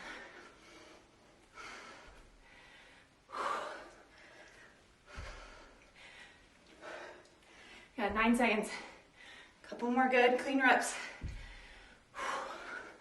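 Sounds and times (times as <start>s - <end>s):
dull low thuds: 11.2s - 11.8s.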